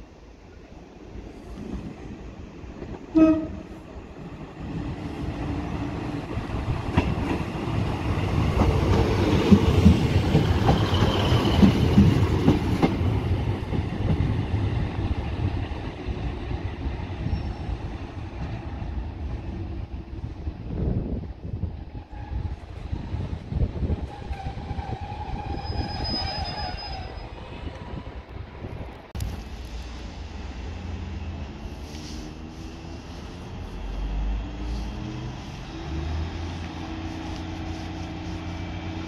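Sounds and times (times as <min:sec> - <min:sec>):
train engine and wheels passing: 0:00.0 - 0:39.0
train horn toot: 0:03.1 - 0:03.7.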